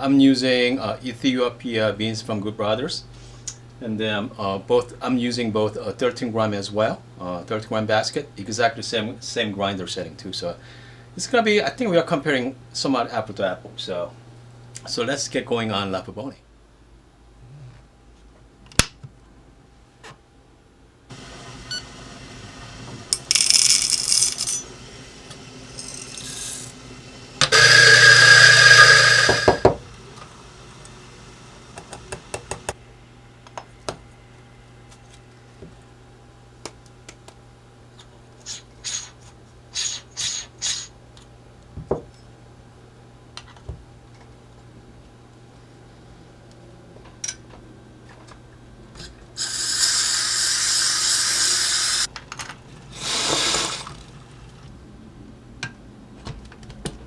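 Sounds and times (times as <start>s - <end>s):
metallic clicks and clinks: 23.2s - 24.6s
low machine hum: 23.2s - 31.6s.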